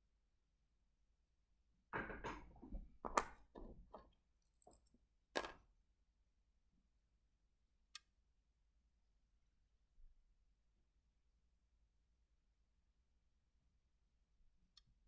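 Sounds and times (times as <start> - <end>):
knocks: 2.0 - 4.1.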